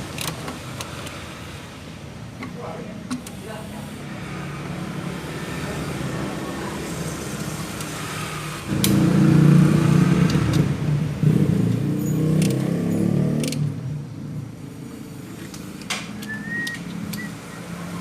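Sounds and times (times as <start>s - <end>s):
sharp clicks: 15.5s - 17.4s.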